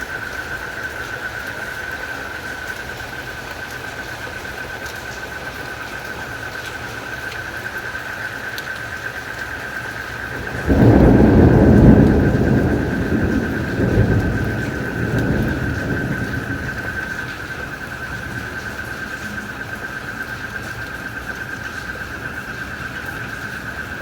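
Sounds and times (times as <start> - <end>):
crickets trilling: 0.0 - 24.0
light rain hiss: 0.0 - 24.0
thunder rumble: 9.3 - 24.0.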